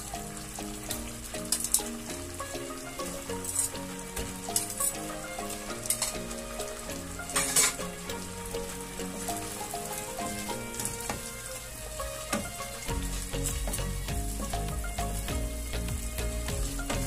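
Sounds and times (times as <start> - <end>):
background music: 0.0 - 17.0
chicken wings sizzling in a pan: 0.0 - 17.0
spatula scraping a pan: 7.2 - 7.9.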